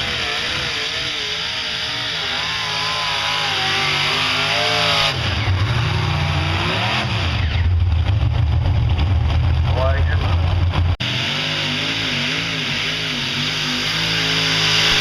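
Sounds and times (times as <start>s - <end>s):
tractor engines running under load: 7.4s - 15.0s.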